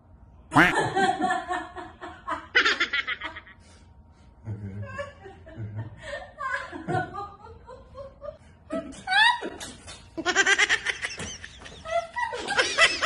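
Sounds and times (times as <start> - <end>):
woman laughing: 4.8 - 13.0.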